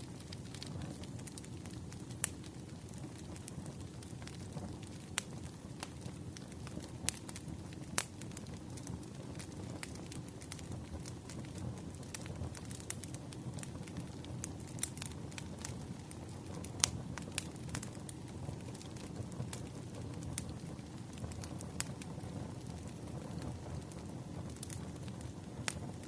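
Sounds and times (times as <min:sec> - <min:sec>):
campfire crackling: 0:00.0 - 0:26.0
sharp pops of burning wood: 0:00.1 - 0:26.0.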